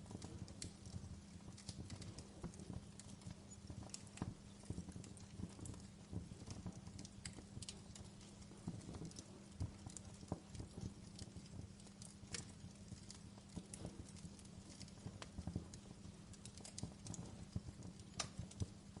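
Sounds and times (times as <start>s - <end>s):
faint steady hum: 0.0s - 19.0s
wood fire crackling: 0.0s - 19.0s.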